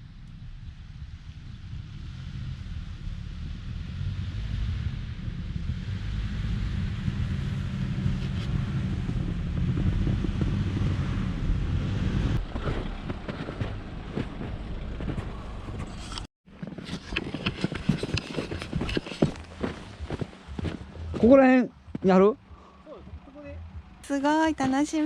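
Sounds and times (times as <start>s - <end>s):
van rumbling: 0.0s - 25.0s
irregular crunching: 12.4s - 21.3s
footsteps crunching in snow: 12.4s - 22.2s.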